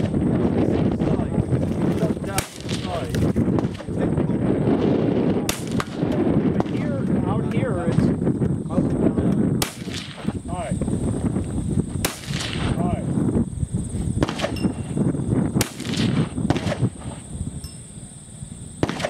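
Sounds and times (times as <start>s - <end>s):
rifle shots: 2.2s - 3.9s, 5.4s - 6.8s, 9.6s - 10.4s, 12.0s - 12.8s, 14.2s - 15.0s, 15.6s - 17.2s, 18.8s - 19.0s.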